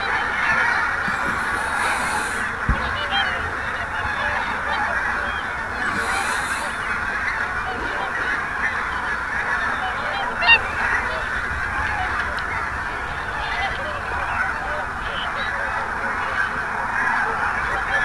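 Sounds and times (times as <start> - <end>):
geese honking: 0.0 - 18.0.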